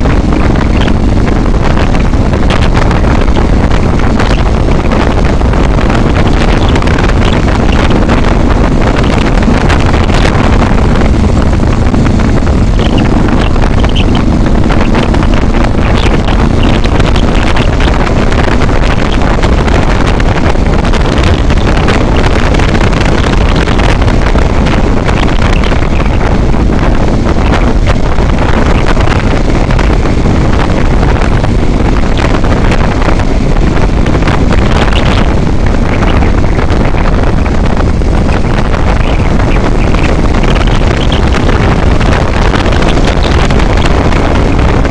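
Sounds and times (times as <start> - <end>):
faint engine drone: 0.0 - 44.9
wind buffeting microphone: 0.0 - 44.9.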